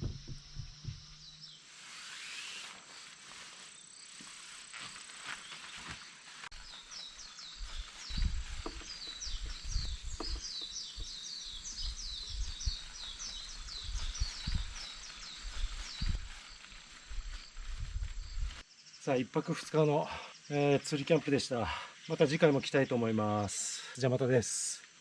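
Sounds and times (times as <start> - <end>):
low rumbles: 0.0 - 1.4
bird chirping: 0.0 - 2.3, 5.4 - 21.2
outdoor background noise: 0.0 - 25.0.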